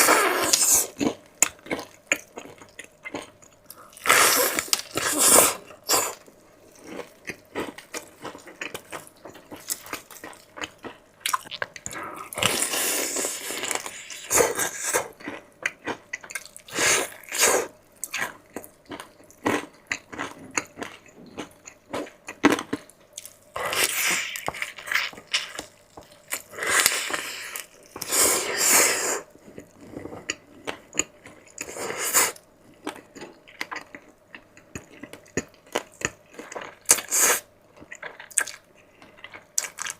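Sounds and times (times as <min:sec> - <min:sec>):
close chewing and biting: 0:37.8 - 0:39.9.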